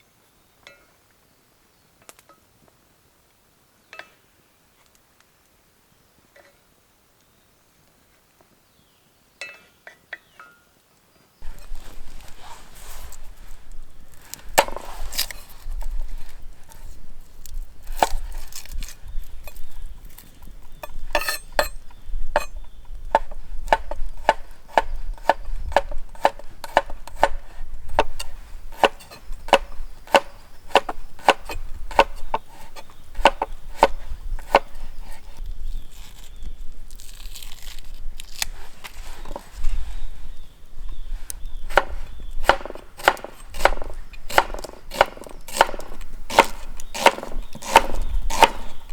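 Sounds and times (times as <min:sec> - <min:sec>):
knife chopping on wooden board: 0:14.3 - 0:15.4, 0:23.1 - 0:35.4, 0:41.7 - 0:48.9.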